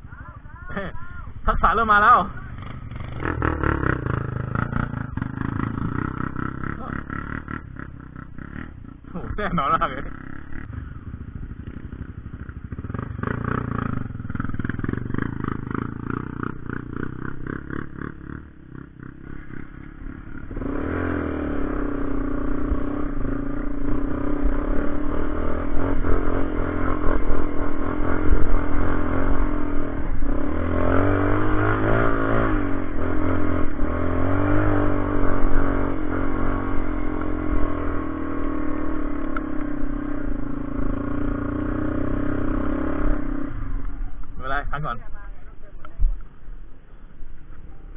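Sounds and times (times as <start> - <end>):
motorcycle engine under load: 0.0 - 47.9.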